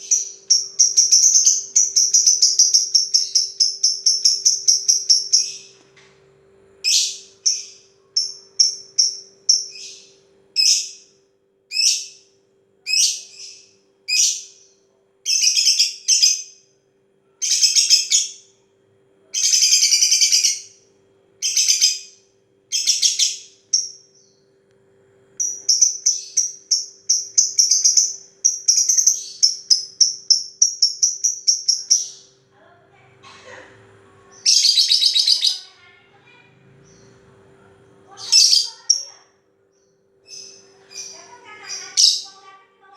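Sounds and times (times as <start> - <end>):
bird ticking chatter: 0.0 - 5.8, 6.9 - 11.1, 21.4 - 24.4, 25.4 - 32.4.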